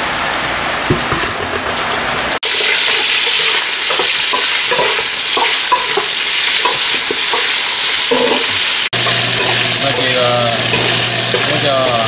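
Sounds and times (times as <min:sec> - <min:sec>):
meat sizzling in hot oil: 0:02.3 - 0:12.0
metal spoon scraping a pot: 0:08.1 - 0:11.8.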